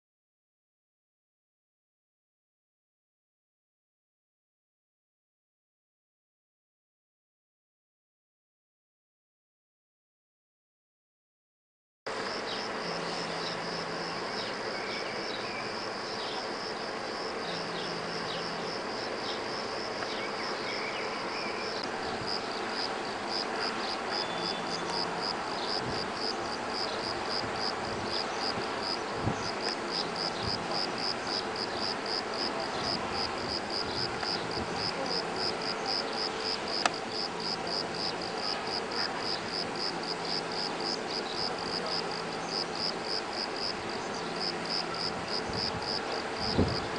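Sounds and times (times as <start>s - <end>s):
insects chirping: 12.2s - 46.9s.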